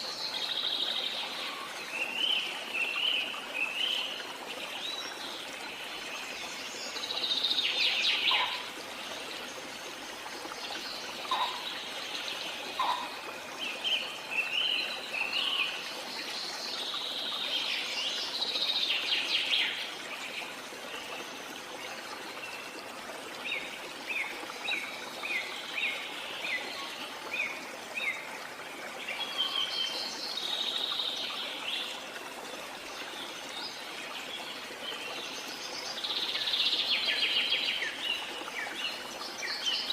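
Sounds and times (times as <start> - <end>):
flowing water: 0.0 - 39.9
birds chirping and calling: 7.8 - 8.7, 11.2 - 11.8, 12.8 - 13.2.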